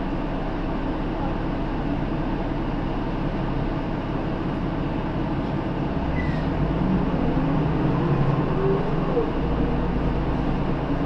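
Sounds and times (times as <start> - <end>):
bus engine and road rumble: 0.0 - 11.0
brief high squeak: 6.1 - 6.5.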